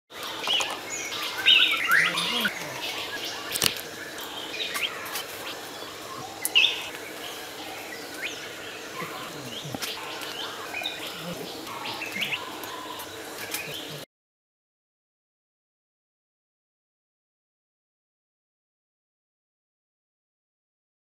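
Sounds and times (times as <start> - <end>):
small birds chirping: 0.1 - 14.1.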